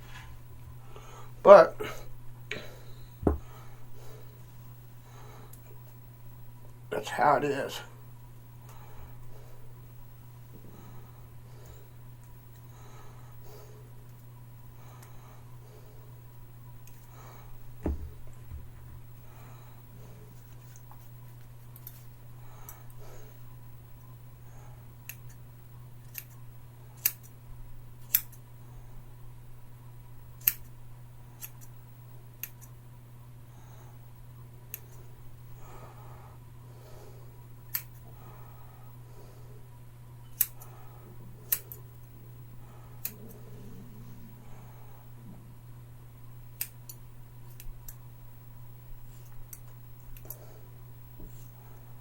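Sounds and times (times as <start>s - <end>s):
low hum: 0.0s - 52.0s
scissors snipping hair: 26.0s - 26.4s, 27.0s - 27.3s, 28.0s - 28.4s, 30.4s - 30.7s, 31.4s - 31.7s, 32.4s - 32.7s, 37.7s - 38.0s, 40.4s - 40.7s, 41.5s - 41.8s, 43.0s - 43.4s.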